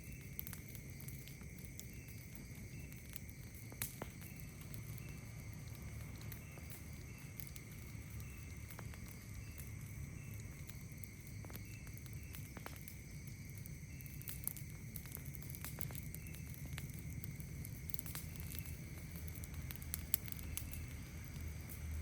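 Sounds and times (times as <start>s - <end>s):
campfire crackling: 0.0s - 22.0s
night insects droning: 0.0s - 22.0s
low steady rumble: 3.5s - 12.5s, 14.6s - 22.0s.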